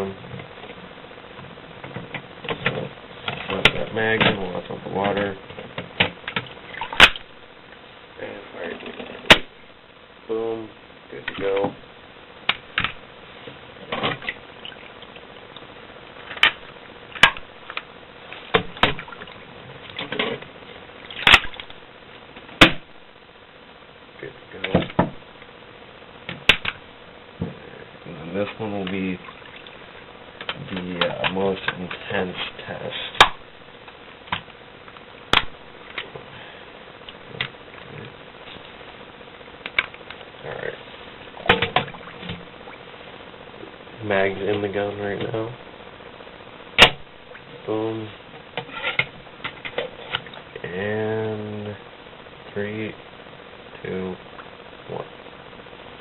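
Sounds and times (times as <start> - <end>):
water sloshing and rustling: 28.9 - 30.0, 40.9 - 43.0.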